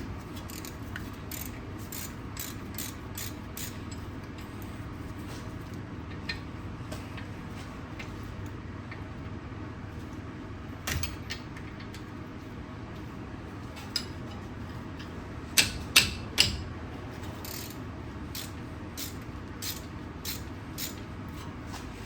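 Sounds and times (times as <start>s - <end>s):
socket wrench ratchet clicks: 0.5s - 3.8s, 17.4s - 17.8s, 18.4s - 21.0s.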